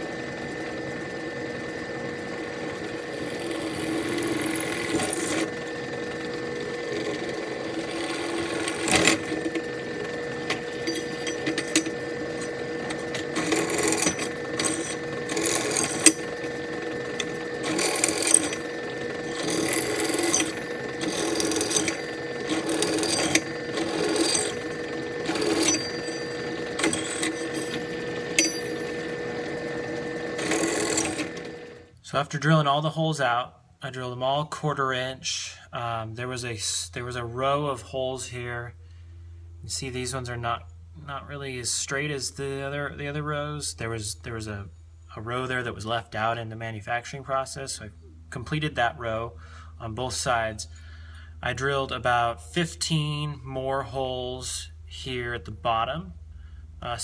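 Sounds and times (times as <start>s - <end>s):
electric drill whining: 0.0s - 31.8s.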